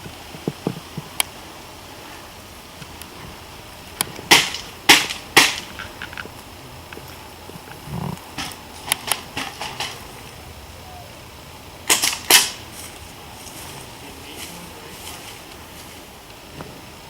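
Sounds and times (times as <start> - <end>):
airsoft guns firing: 4.3 - 5.9, 11.9 - 12.6.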